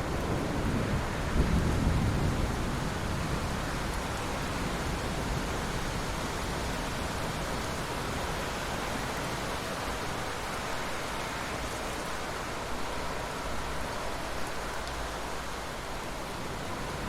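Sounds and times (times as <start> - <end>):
thunder rumble: 0.0 - 5.9
steady rain: 0.0 - 17.0.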